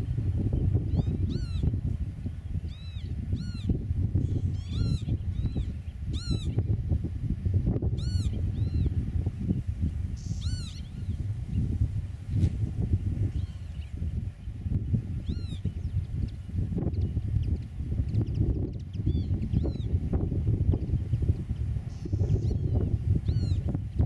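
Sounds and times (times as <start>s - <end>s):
wind rumble: 0.0s - 24.0s
bird piping calls: 0.9s - 1.7s, 2.7s - 6.6s, 8.0s - 8.9s, 10.2s - 11.2s.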